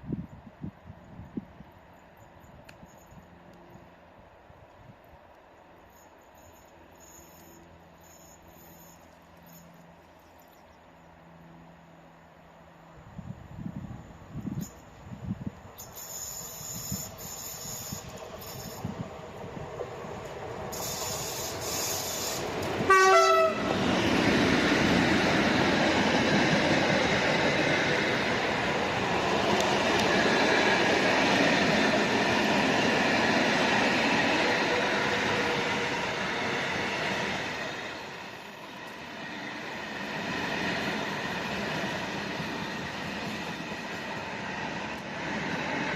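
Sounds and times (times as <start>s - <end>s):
train rumble and wheel noise: 0.0s - 45.9s
train horn blast: 21.7s - 23.8s.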